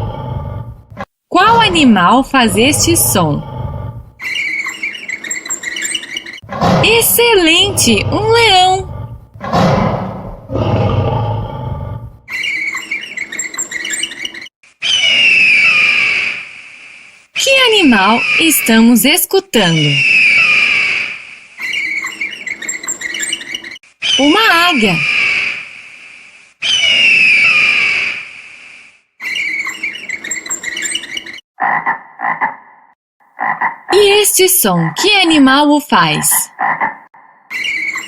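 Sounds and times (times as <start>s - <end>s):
lion roaring: 0.0s - 1.0s, 2.4s - 4.2s, 6.4s - 12.2s
shrill falling shriek: 14.8s - 16.5s, 20.0s - 22.5s, 26.6s - 28.4s
eagle screaming: 14.8s - 16.6s, 19.8s - 23.4s, 24.0s - 25.9s, 26.6s - 28.4s
frog croaking: 31.6s - 34.0s, 36.5s - 37.5s.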